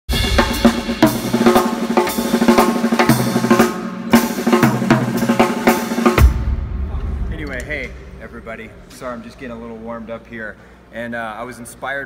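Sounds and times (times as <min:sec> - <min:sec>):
drum kit groove: 0:00.1 - 0:09.6.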